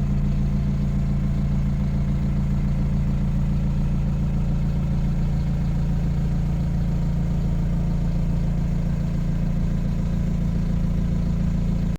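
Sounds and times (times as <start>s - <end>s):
diesel engine idling: 0.0s - 11.9s.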